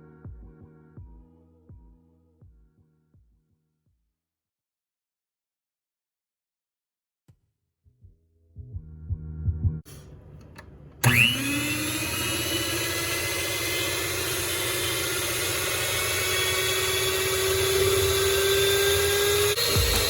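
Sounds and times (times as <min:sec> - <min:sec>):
stand mixer motor whining: 0:11.0 - 0:20.0.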